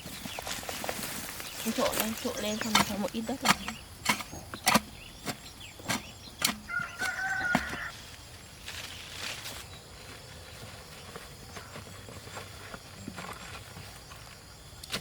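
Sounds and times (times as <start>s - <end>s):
chickens calling: 0.0s - 8.2s.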